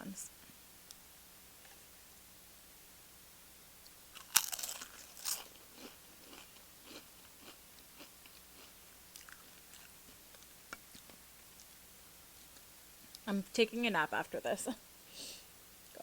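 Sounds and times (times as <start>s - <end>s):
tortilla chip crunching: 4.1s - 11.8s.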